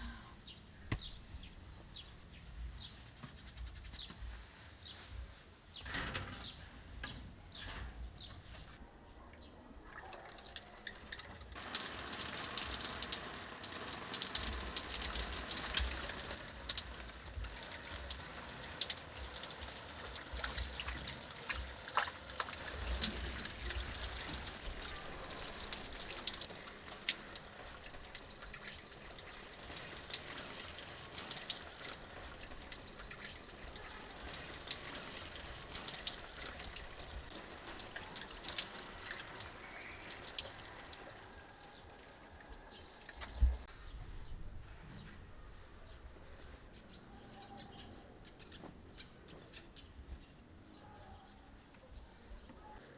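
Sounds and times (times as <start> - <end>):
water running into a sink: 10.1 - 41.3.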